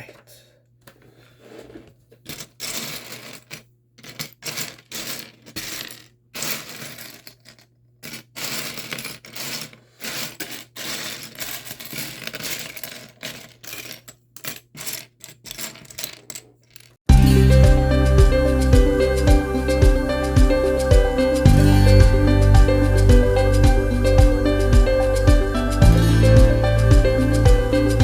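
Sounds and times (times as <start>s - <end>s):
plastic pieces rattling: 2.2s - 17.0s.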